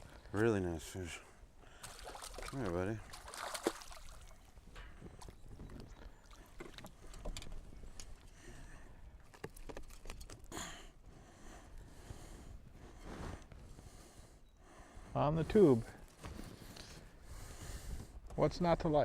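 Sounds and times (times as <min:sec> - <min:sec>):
light water sounds: 0:01.7 - 0:08.4
knocks and clicks in a boat: 0:04.6 - 0:08.4.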